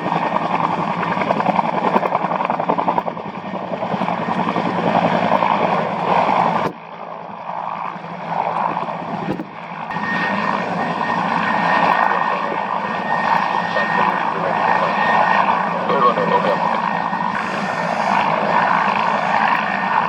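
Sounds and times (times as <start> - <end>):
aircraft turbine engine: 0.0 - 20.0
high-pitched turbine whine: 9.8 - 20.0.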